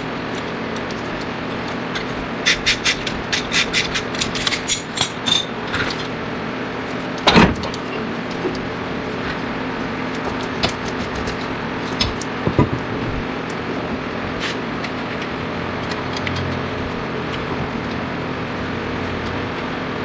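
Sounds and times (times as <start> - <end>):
steady mechanical hum: 0.0 - 20.0
hand tools clinking on steel: 2.5 - 6.0.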